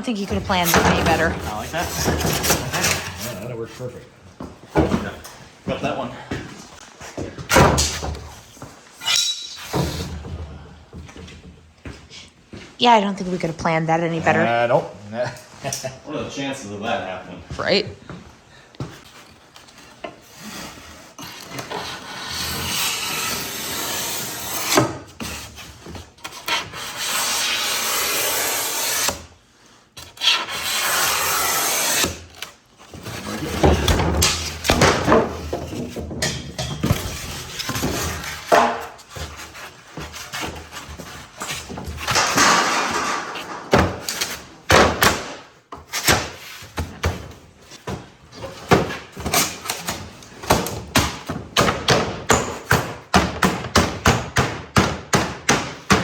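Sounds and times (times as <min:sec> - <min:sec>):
wood rubbing and scraping: 0:00.0 - 0:04.0, 0:32.8 - 0:44.6.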